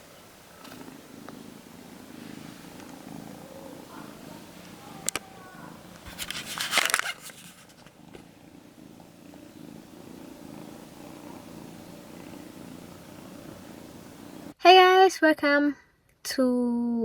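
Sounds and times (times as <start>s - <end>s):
cat purring: 0.0s - 14.6s
brief rustle: 6.0s - 8.3s.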